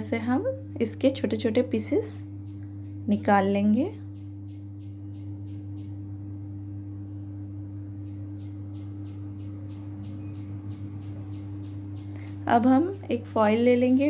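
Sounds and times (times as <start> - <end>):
steady low hum: 0.0 - 14.0
bird chirping: 2.4 - 3.2, 4.0 - 6.1, 8.0 - 12.6.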